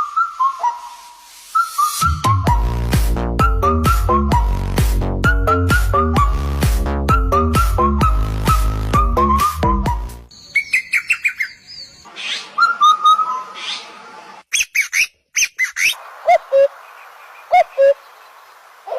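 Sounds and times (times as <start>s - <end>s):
bird chirps and calls: 10.3s - 18.9s.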